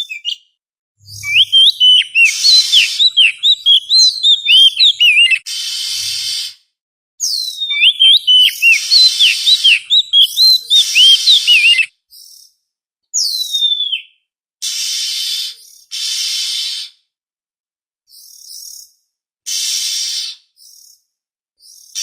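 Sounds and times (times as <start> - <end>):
bird song whistling: 0.0 - 0.4, 1.0 - 6.5, 7.2 - 12.5, 13.2 - 14.2
harsh raspy bird notes: 1.0 - 6.6, 7.6 - 11.9, 14.6 - 17.0, 19.5 - 20.6.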